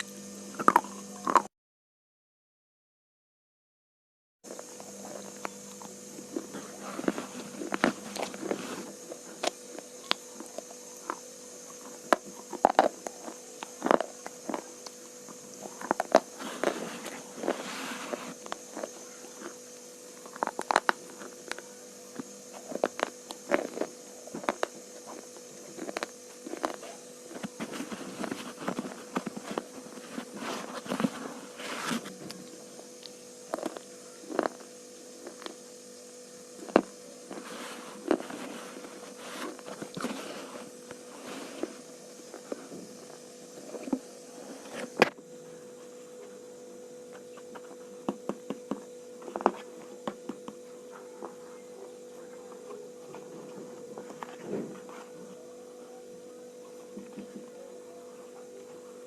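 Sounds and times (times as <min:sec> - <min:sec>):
steady low hum: 0:00.0 - 0:01.5, 0:04.5 - 0:59.0
slate pencils being chewed: 0:00.6 - 0:01.5, 0:04.5 - 0:35.6, 0:36.6 - 0:45.1.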